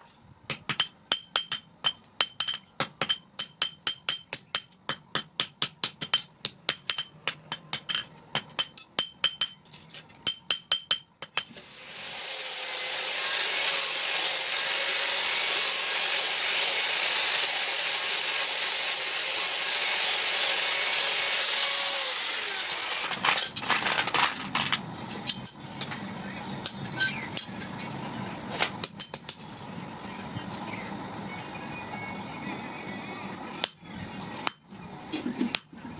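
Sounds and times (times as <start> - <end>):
hammer ringing on steel: 0.0 - 11.4
power tool on metal: 11.5 - 23.3.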